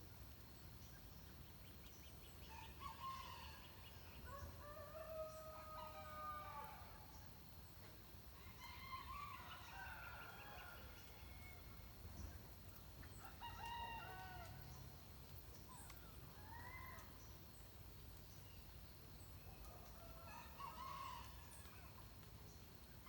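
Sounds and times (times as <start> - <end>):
distant rooster crowing: 4.3 - 7.0, 8.5 - 11.8.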